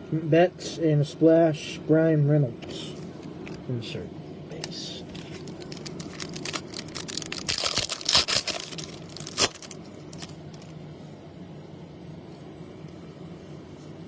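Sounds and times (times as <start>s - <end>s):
foil wrapper tearing and crinkling: 5.1s - 10.7s.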